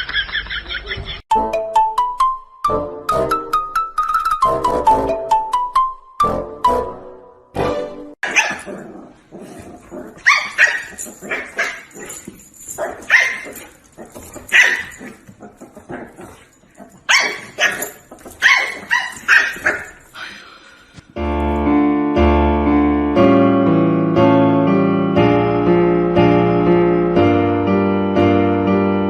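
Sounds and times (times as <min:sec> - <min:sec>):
music: 0:01.3 - 0:08.2, 0:21.2 - 0:29.0
dog barking: 0:08.2 - 0:08.8, 0:10.2 - 0:12.0, 0:12.8 - 0:13.7, 0:14.5 - 0:15.2, 0:17.1 - 0:20.0.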